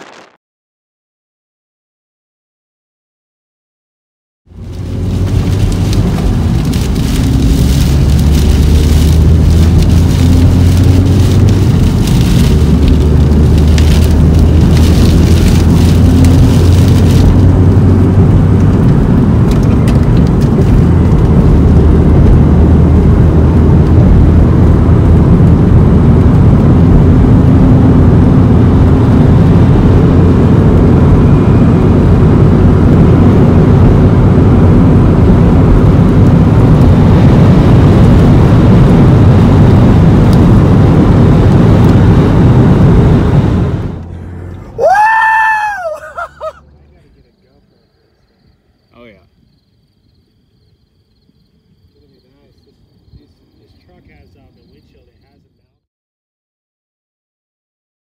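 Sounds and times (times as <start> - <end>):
rain crackling on glass: 4.5 - 24.4
low engine hum: 4.5 - 48.9
road and wind noise: 4.5 - 55.8.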